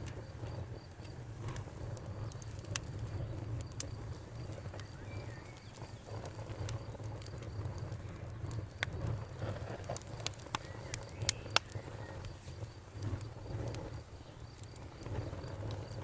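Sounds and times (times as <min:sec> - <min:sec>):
campfire crackling and popping: 0:00.0 - 0:16.0
cricket chirping: 0:00.0 - 0:16.0.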